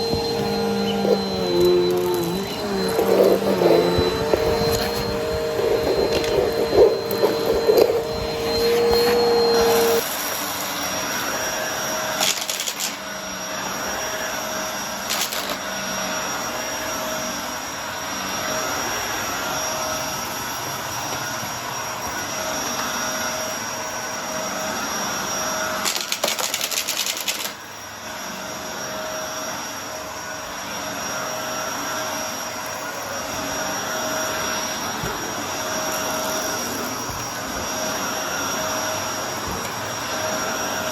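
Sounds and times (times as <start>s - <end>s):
loud tone: 0.0s - 10.0s
high whine: 0.0s - 10.1s
vacuum cleaner running: 0.0s - 40.9s.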